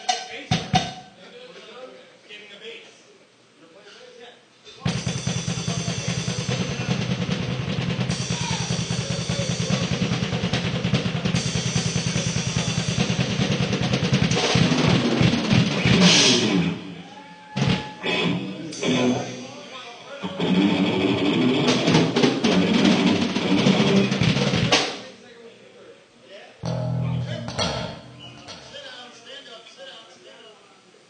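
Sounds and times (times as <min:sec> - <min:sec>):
drum kit playing: 0:00.0 - 0:01.0, 0:04.8 - 0:25.0, 0:26.6 - 0:28.9.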